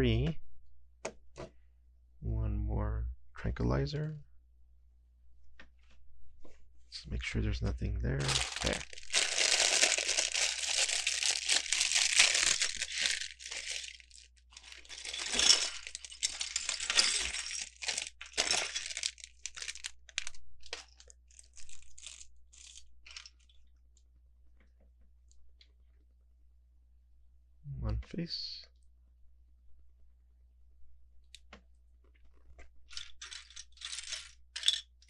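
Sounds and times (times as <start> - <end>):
plastic bag crinkling: 8.2 - 23.6.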